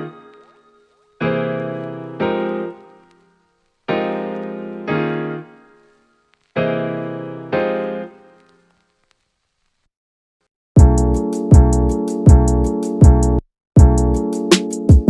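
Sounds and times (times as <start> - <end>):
piano chords: 0.0 - 3.2, 3.9 - 5.9, 6.6 - 8.4.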